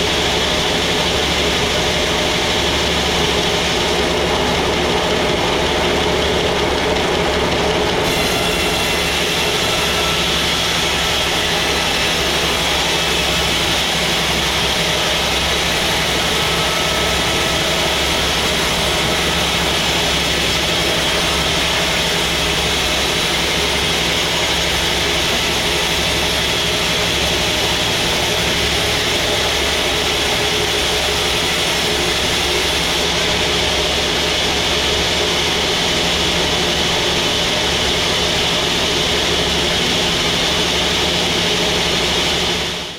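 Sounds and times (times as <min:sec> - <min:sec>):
sawmill machinery running: 0:00.0 - 0:42.9.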